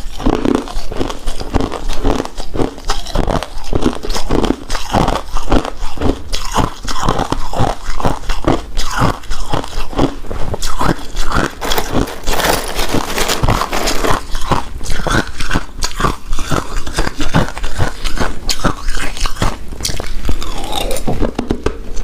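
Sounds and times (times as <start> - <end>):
close chewing mouth sounds: 0.0 - 22.0.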